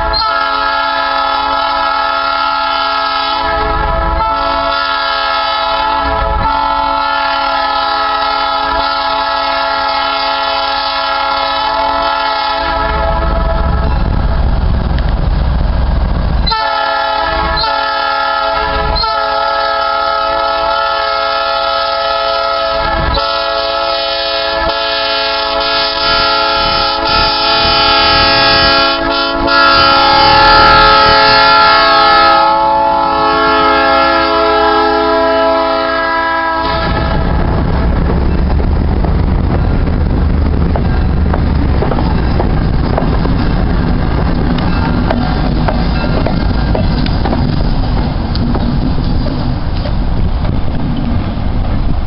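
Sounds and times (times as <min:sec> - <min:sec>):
locomotive horn blasts: 0:00.0 - 0:14.2, 0:16.4 - 0:37.4
low train rumble: 0:00.0 - 0:52.0.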